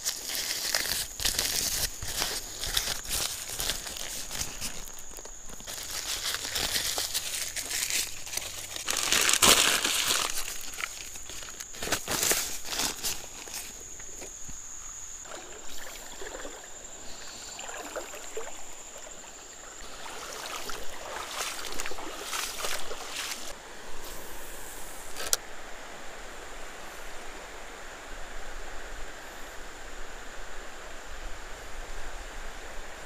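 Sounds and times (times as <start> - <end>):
river water sloshing and splashing: 0.0 - 25.2.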